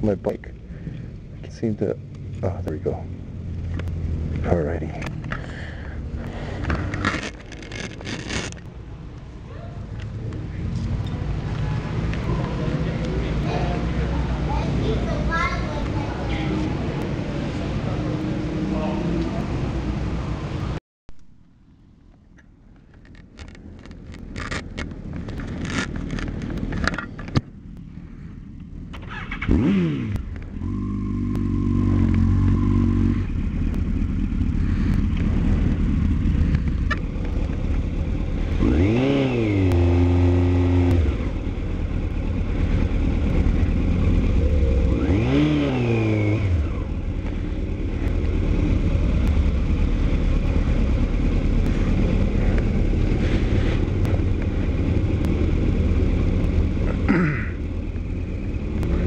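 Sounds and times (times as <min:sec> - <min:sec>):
motorcycle engine revving: 0:03.0 - 0:08.7, 0:28.9 - 0:59.0.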